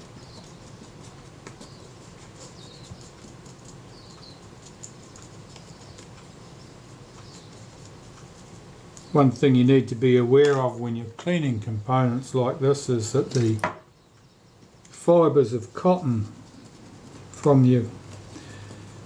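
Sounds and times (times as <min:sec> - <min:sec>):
cotton bud rubbing metal: 0:00.0 - 0:09.3, 0:15.8 - 0:19.0
steady low hum: 0:00.0 - 0:19.0.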